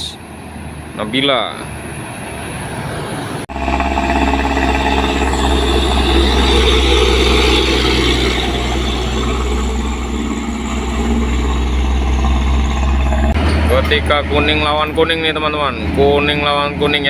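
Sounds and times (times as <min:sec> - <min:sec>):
truck diesel engine labouring: 0:00.0 - 0:17.0.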